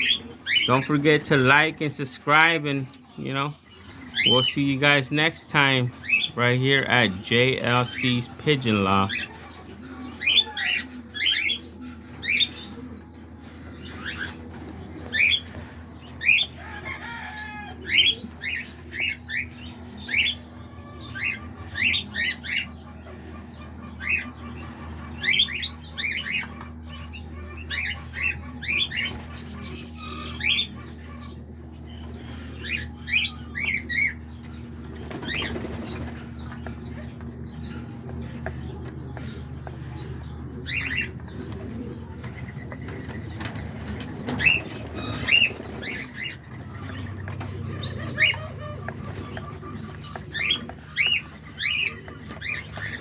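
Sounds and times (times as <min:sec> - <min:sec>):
parrots chirping: 0:00.0 - 0:53.0
steady low hum: 0:00.0 - 0:53.0.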